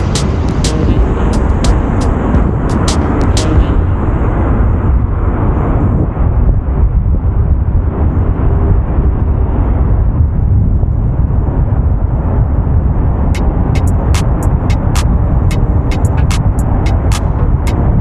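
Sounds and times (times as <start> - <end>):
sharp click: 13.4 - 15.1.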